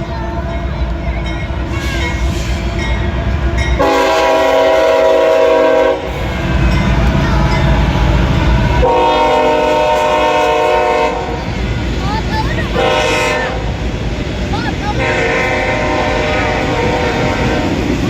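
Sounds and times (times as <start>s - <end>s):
train rumble: 0.0s - 18.0s
locomotive air horn blasts: 1.7s - 2.7s, 3.8s - 7.0s, 8.8s - 11.4s, 12.7s - 13.8s, 15.0s - 17.8s.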